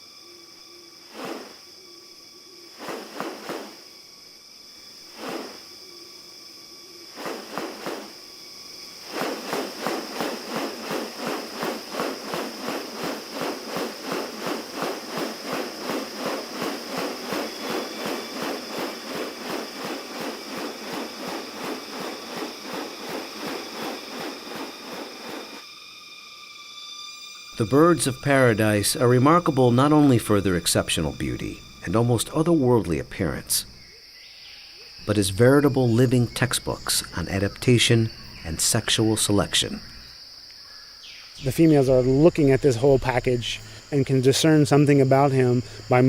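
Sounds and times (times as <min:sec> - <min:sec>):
insects droning: 0:00.0 - 0:46.0
rapid rhythmic pulsing: 0:09.1 - 0:25.6.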